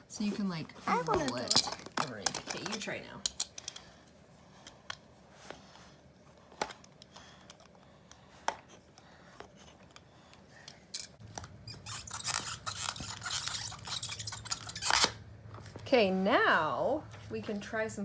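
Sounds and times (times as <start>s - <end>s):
rustling and clattering: 0.2s - 3.9s.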